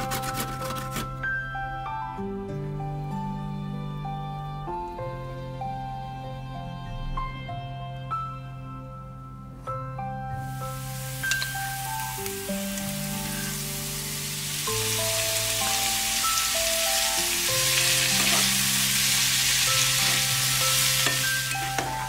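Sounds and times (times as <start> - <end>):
background music with held notes: 0.0 - 22.0
vegetables sizzling in oil: 10.4 - 22.0.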